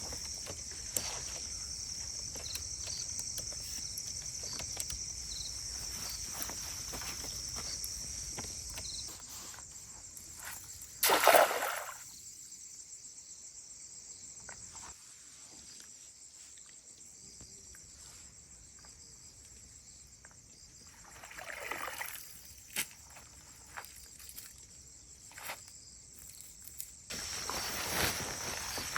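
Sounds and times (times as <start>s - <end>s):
crickets and insects chirring: 0.0s - 28.9s.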